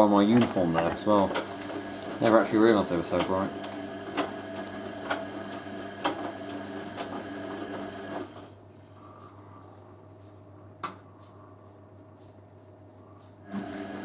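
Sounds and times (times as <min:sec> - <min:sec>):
washing machine motor humming: 0:00.0 - 0:09.2, 0:13.3 - 0:14.0.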